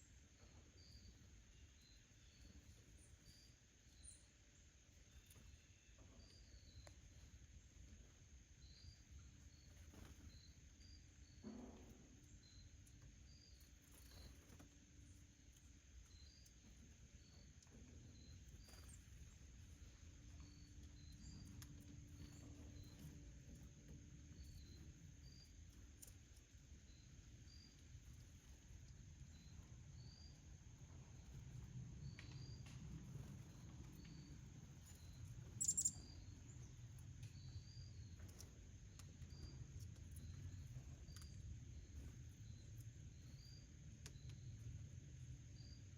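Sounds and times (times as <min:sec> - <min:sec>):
faint high chirps: 0:15.5 - 0:44.9.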